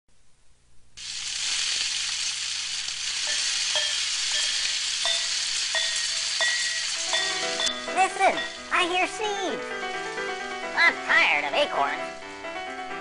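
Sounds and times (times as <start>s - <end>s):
steady crackling hiss: 0.2s - 13.0s.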